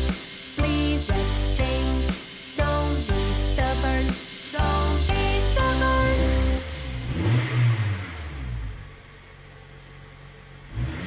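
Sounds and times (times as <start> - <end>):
song's final held chord: 0.0 - 7.8
cartoon bus engine revving: 0.0 - 9.1, 10.7 - 11.0.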